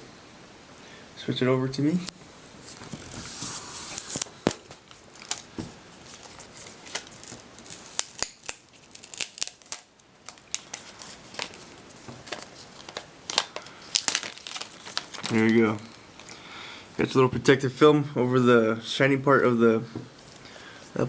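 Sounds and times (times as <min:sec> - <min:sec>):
plastic wrapping crinkling: 0:02.6 - 0:16.3.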